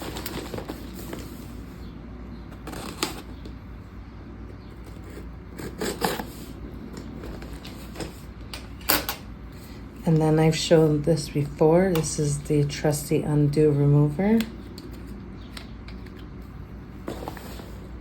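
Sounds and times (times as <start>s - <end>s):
paper and cardboard rustling: 0.0s - 1.8s, 2.5s - 3.6s
low steady hum: 0.0s - 18.0s.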